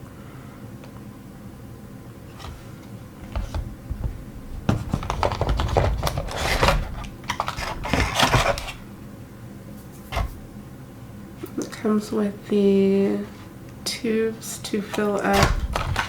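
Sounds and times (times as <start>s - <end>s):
plastic packaging crinkling: 3.3s - 8.9s, 15.0s - 16.0s
plastic packaging clicking: 4.8s - 8.8s, 15.3s - 16.0s.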